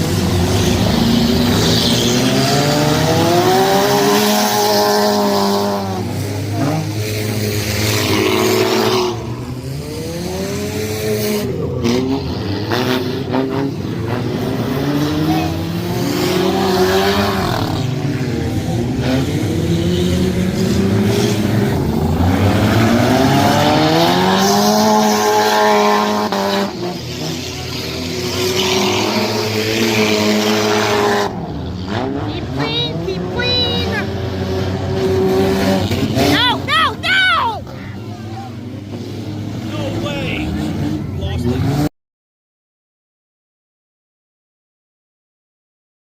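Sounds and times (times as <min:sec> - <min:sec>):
race car engines revving: 0:00.0 - 0:41.9.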